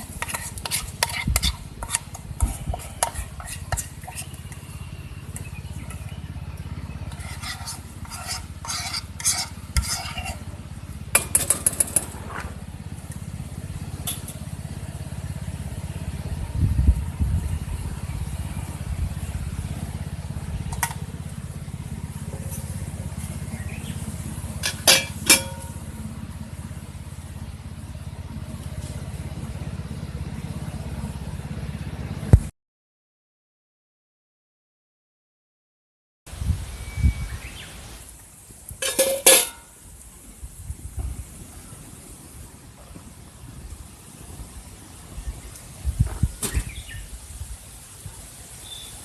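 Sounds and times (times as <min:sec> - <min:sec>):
low rumble: 0:10.6 - 0:24.7
metal utensils clinking on pan: 0:24.6 - 0:25.7, 0:38.8 - 0:39.7.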